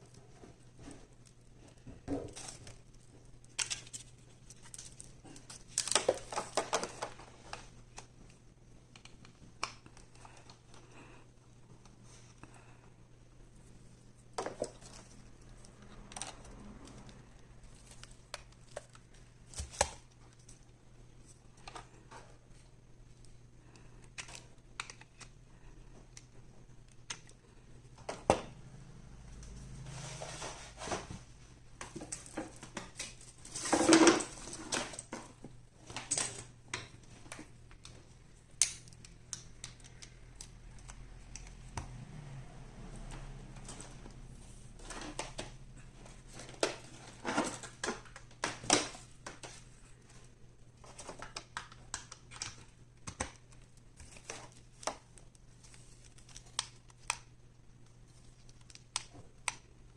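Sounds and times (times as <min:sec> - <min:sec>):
packaging rustling: 0:00.5 - 0:08.2.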